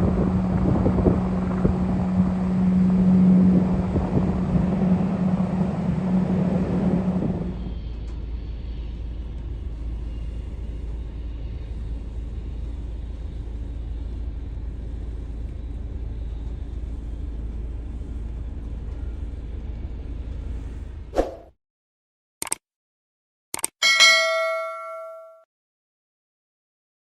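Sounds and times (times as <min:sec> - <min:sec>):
jet aircraft rumble: 0:00.0 - 0:21.2
sharp click: 0:22.4 - 0:22.6, 0:23.5 - 0:23.8.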